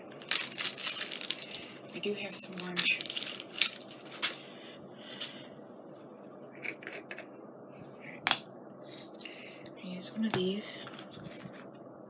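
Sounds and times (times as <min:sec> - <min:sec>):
paper rustling: 0:02.4 - 0:04.4, 0:10.9 - 0:11.7.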